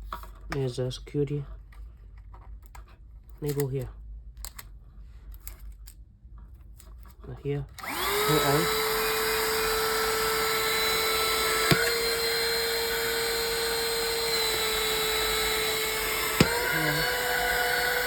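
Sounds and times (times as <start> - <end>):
handheld vacuum motor whine: 7.8 - 18.0
sharp clicks: 9.1 - 18.0.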